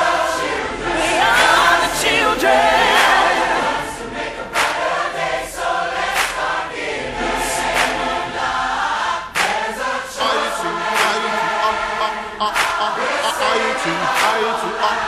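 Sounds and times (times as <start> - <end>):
choir singing a pop ballad: 0.0 - 15.0
backing music with steady beat: 1.1 - 15.0.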